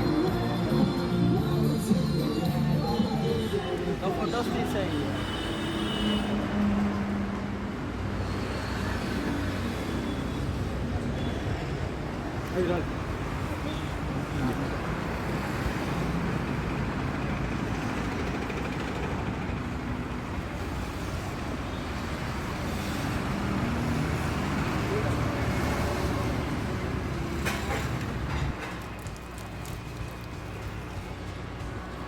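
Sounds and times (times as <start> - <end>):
indistinct voices: 0.0 - 5.2
traffic hum: 0.0 - 32.0.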